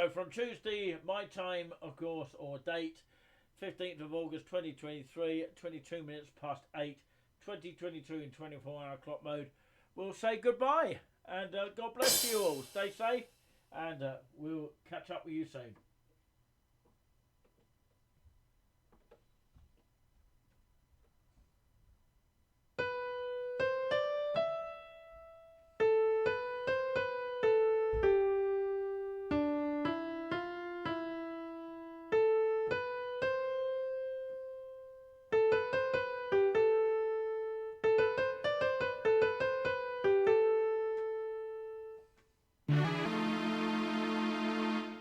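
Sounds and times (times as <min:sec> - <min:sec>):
slow piano melody on keyboard: 0:22.8 - 0:42.0, 0:42.7 - 0:45.0.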